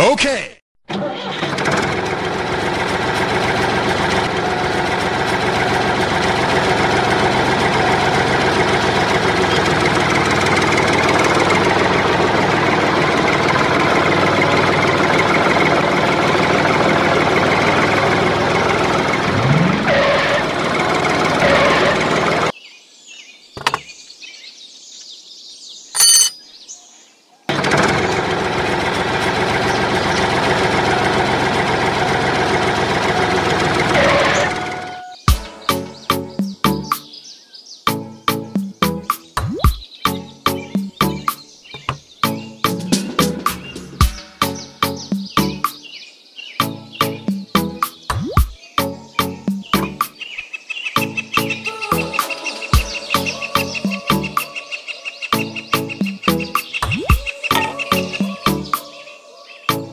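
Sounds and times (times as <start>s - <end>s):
short high beep: 26.0s - 26.4s.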